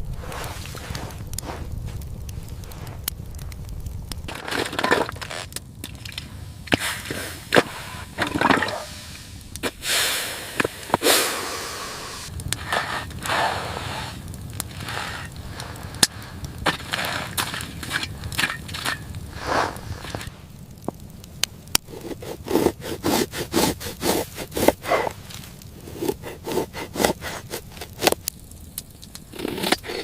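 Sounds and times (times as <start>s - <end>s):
crunching and cracking with scraping: 0.0s - 9.8s, 12.3s - 30.0s
low background rumble: 0.0s - 22.8s.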